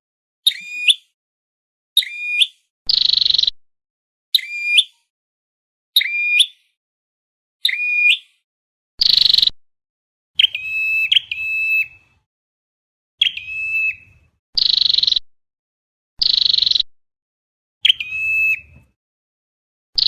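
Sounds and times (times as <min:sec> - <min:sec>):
bird calls played back: 0:00.4 - 0:01.2, 0:02.0 - 0:03.6, 0:04.3 - 0:05.1, 0:06.0 - 0:06.8, 0:07.6 - 0:08.4, 0:09.0 - 0:09.6, 0:10.4 - 0:12.2, 0:13.2 - 0:15.2, 0:16.2 - 0:16.9, 0:17.8 - 0:18.8.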